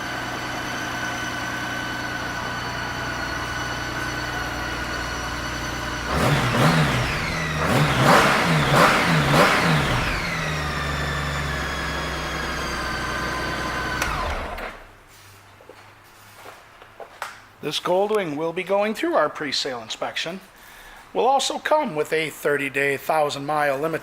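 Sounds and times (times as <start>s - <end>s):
motorcycle engine idling: 0.0s - 14.5s.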